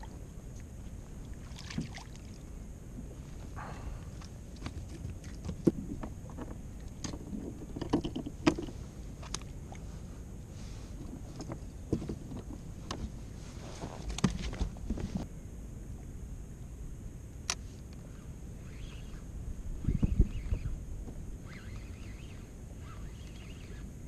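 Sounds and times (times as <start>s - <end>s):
wind and water rumble: 0.0s - 24.0s
knocks and clicks on a kayak: 4.6s - 9.4s.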